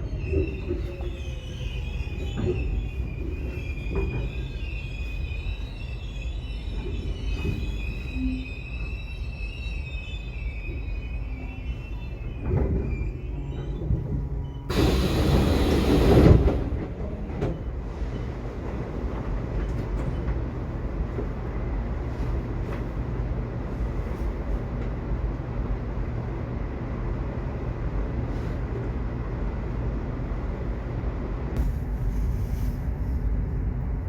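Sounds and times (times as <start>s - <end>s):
high wheel squeal: 0.0s - 16.0s
subway train rumble: 0.0s - 34.0s.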